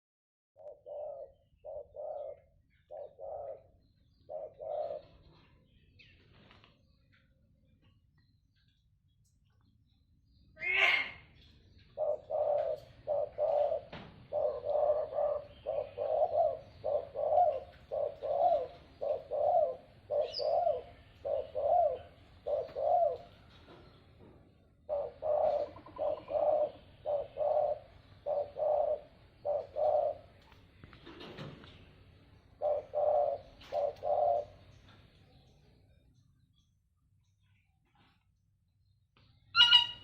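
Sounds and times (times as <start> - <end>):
dove cooing: 0.6 - 5.7, 11.8 - 23.8, 24.7 - 34.9.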